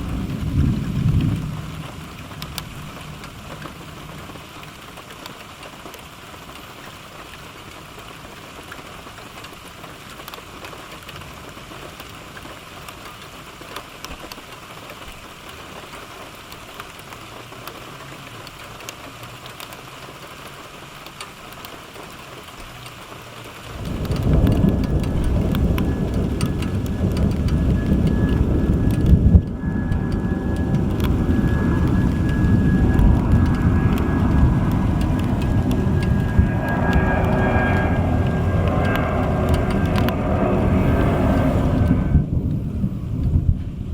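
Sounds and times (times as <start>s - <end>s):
heavy rain falling: 0.0s - 43.9s
loud low rumble: 23.8s - 43.9s.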